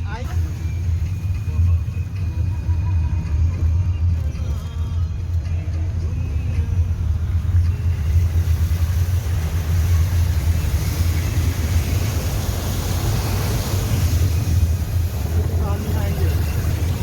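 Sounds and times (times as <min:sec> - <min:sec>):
car rumbling: 0:00.0 - 0:17.0
water hissing wash: 0:07.9 - 0:17.0.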